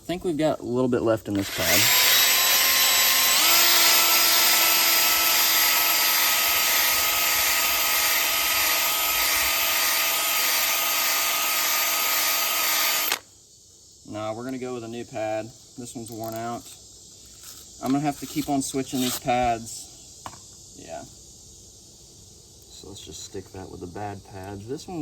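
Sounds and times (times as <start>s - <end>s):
power tool sanding a wheel rim: 1.3s - 13.2s.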